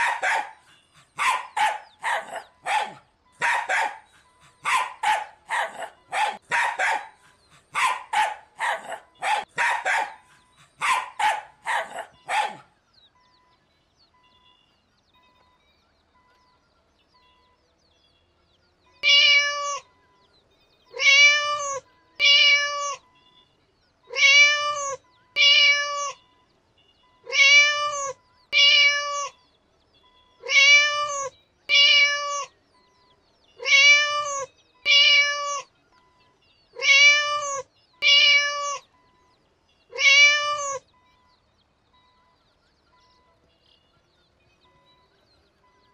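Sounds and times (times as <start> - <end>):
cat meowing: 19.0 - 19.9, 20.9 - 23.0, 24.1 - 26.2, 27.3 - 29.4, 30.4 - 32.6, 33.6 - 35.7, 36.8 - 38.9, 39.9 - 40.8.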